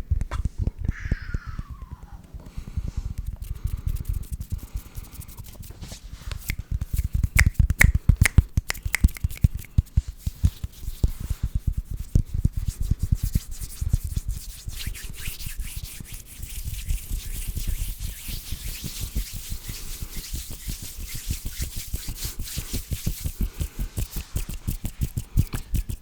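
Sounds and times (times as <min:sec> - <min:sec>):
dry hand rubbing: 0:02.5 - 0:26.0
quick hand clicks and taps: 0:06.4 - 0:09.9.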